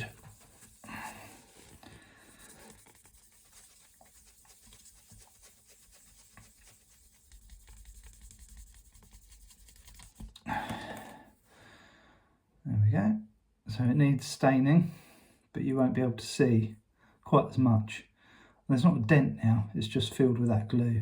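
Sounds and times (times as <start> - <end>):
sanding pad scratching wood: 0.0 - 10.3.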